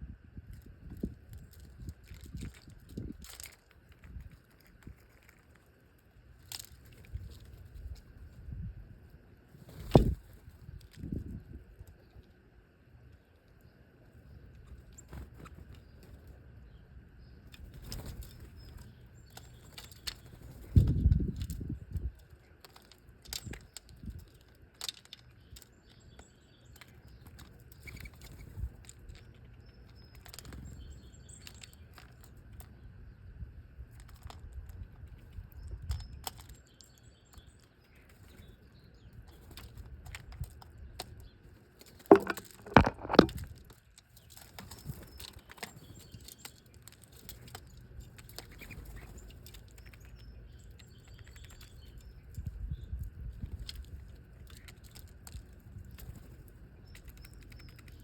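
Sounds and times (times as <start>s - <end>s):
faint high bird chirps: 25.4s - 32.2s, 44.2s - 53.1s.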